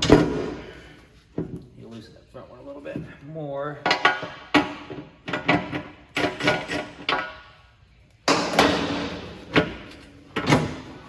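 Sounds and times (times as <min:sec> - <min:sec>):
metallic clanks and knocks: 0:03.8 - 0:07.5.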